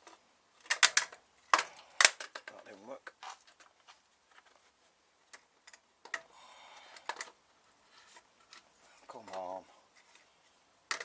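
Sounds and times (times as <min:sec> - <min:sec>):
light rustle: 0:06.8 - 0:10.6.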